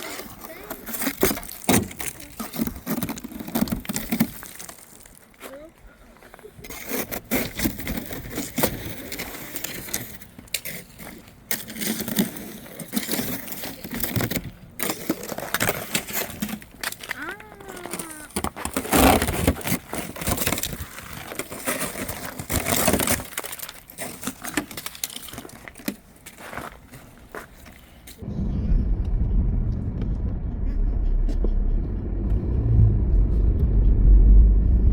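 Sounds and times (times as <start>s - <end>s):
spatula scraping ice off car: 6.7s - 14.2s.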